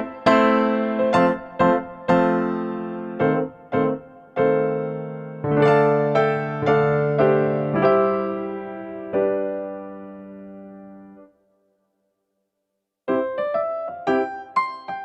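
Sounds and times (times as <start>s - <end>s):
slow piano notes and chords: 0.0s - 11.4s, 13.1s - 15.0s.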